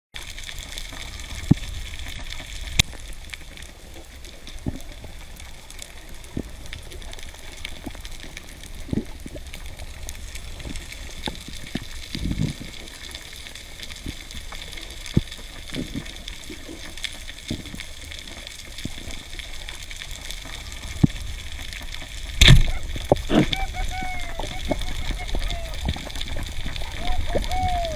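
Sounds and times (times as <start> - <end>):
low gurgles: 0.2 - 27.9
underwater rush of water: 0.2 - 27.9
sharp underwater clicks: 6.3 - 27.9.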